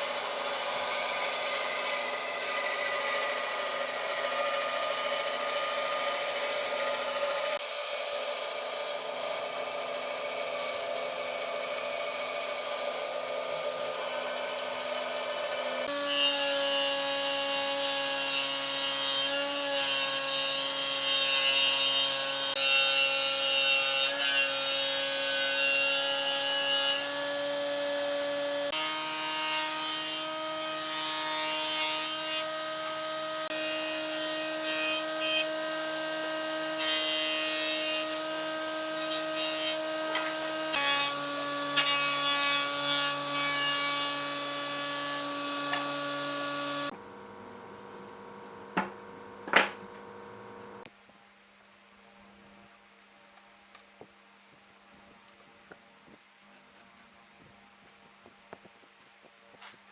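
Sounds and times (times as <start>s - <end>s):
power tool motor whine: 44.3s - 46.9s.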